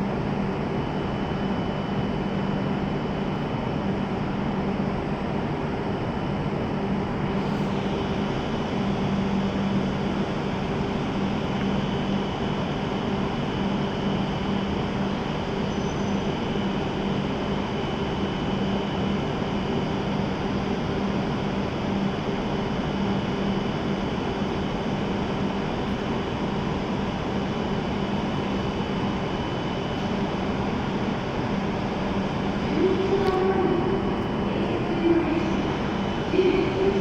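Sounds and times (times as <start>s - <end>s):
stationary train hum and hiss: 0.0s - 37.0s.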